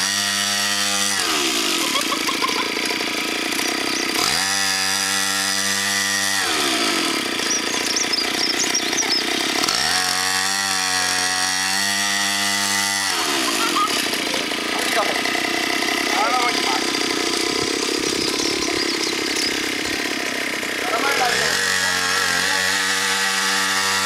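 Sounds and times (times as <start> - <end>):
small dirt bike engine revving: 0.0 - 24.0.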